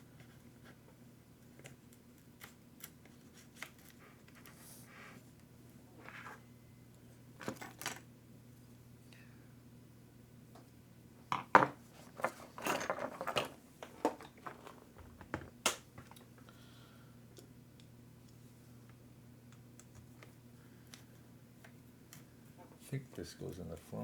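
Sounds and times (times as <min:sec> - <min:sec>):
small parts clicking and clattering: 0:12.2 - 0:15.2.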